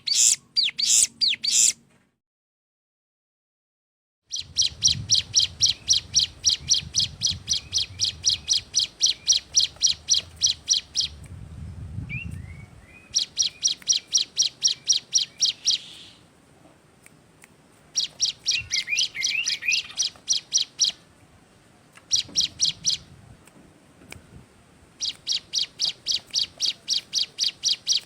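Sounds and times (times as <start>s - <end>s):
bird singing rapid high notes: 0.0s - 1.8s, 4.3s - 11.2s, 12.1s - 16.3s, 18.0s - 21.0s, 22.1s - 23.1s, 25.0s - 28.0s
soft low bird chirps: 0.0s - 1.8s, 4.3s - 16.3s, 17.0s - 21.0s, 22.0s - 23.2s, 24.2s - 28.0s.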